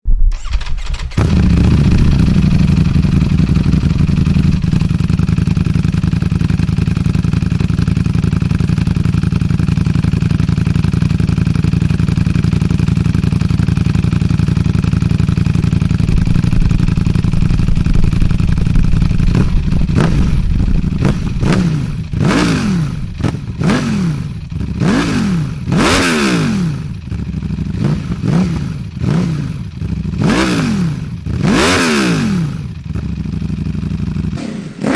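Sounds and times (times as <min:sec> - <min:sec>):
motorcycle engine revving: 0:00.3 - 0:34.9
exhaust cracks: 0:15.0 - 0:25.0.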